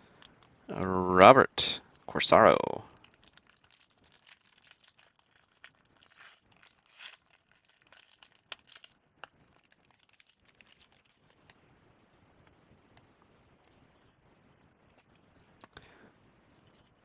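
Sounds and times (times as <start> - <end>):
card pack wrapper crinkling and tearing: 2.8 - 11.4.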